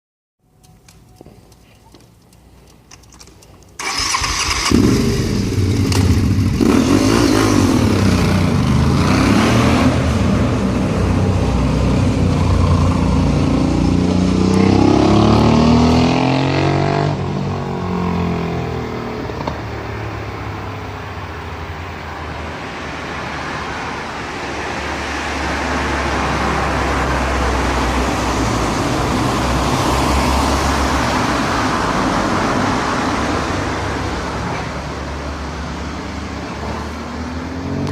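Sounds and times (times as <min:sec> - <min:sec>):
motorcycle engine revving: 0:03.8 - 0:20.4.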